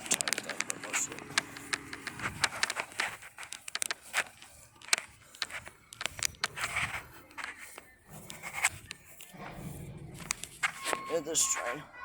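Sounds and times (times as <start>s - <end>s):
hands handling metal casing: 0.0s - 9.4s.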